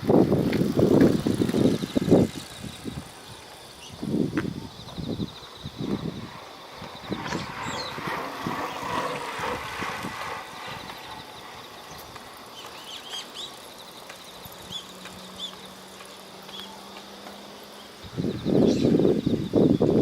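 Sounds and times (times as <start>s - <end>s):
insects trilling: 0.0s - 20.0s
bird chirps: 12.6s - 16.8s.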